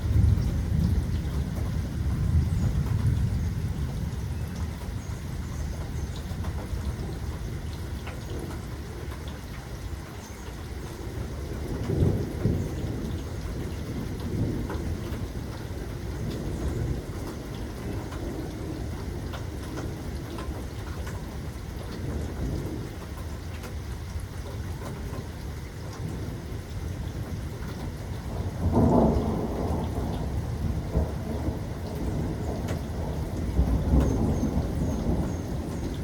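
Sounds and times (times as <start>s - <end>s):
rolling thunder: 0.0s - 7.7s, 11.1s - 23.2s, 25.9s - 36.0s
steady rain: 0.0s - 36.0s
loud thunder clap: 28.3s - 36.0s.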